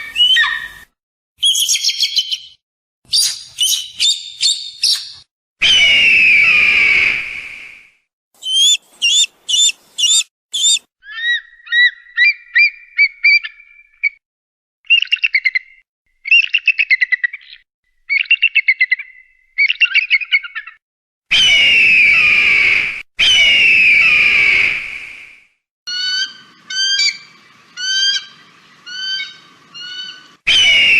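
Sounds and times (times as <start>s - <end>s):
sharp high hawk calls: 1.4s - 7.2s, 8.4s - 13.6s, 25.9s - 30.9s
hawk screaming: 8.4s - 10.8s
rapid hawk chattering: 8.4s - 11.9s.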